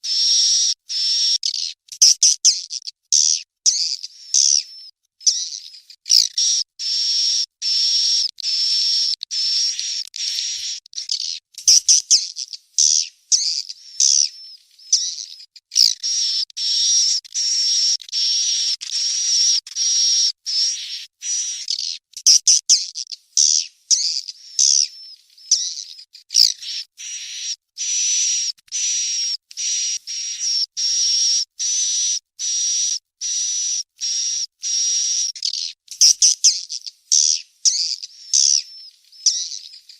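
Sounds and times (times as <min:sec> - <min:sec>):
bird chicks chirping: 0:23.4 - 0:27.5, 0:34.7 - 0:39.9.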